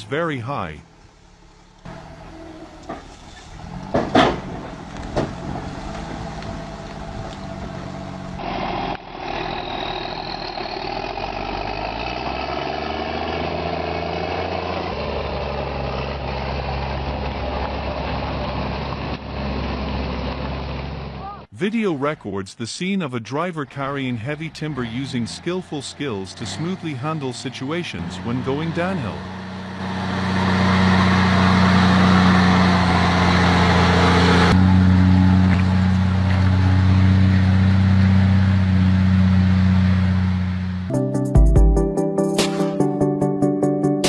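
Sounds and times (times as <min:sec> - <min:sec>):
heavy truck engine under load: 0:00.0 - 0:22.2, 0:23.4 - 0:40.9
sharp knocks: 0:03.8 - 0:05.7.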